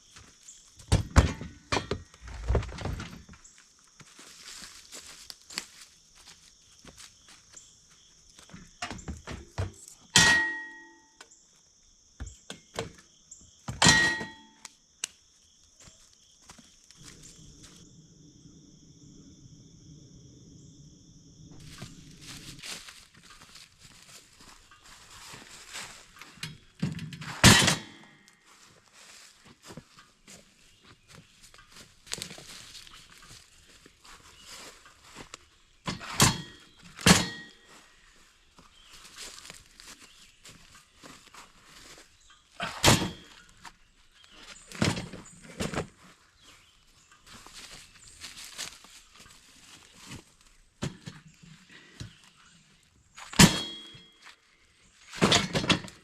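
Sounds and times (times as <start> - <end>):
loud ringing thunks: 8.8 - 11.0, 13.7 - 14.6, 35.8 - 37.6, 42.7 - 43.4, 53.3 - 54.2.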